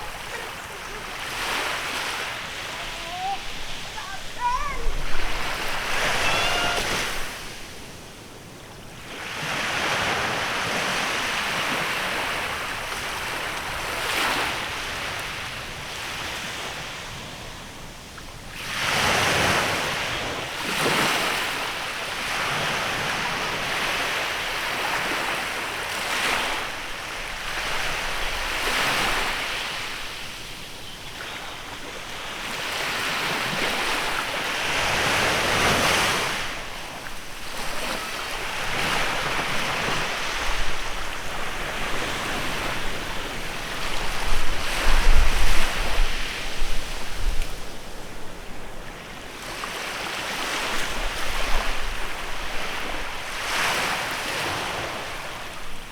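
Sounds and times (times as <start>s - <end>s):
wind on microphone: 0.0s - 7.8s, 37.7s - 48.2s
small waves breaking on beach: 0.0s - 55.9s.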